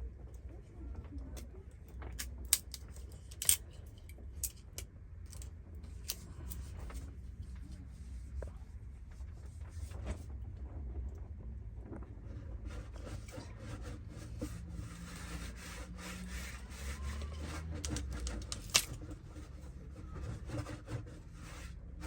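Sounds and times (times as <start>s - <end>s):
low steady rumble: 0.0s - 22.0s
small objects clicking and clinking: 2.2s - 5.4s, 17.8s - 19.0s.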